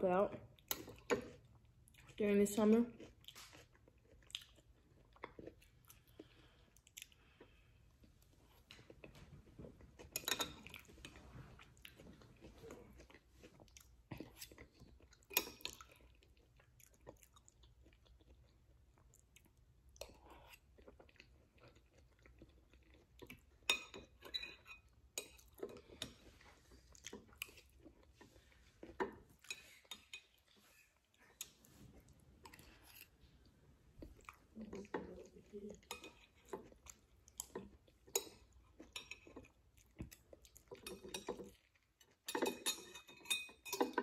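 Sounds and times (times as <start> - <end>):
quiet chewing and mouth sounds: 0.1 - 44.0
metal spoon clinking ceramic bowl: 42.3 - 44.0.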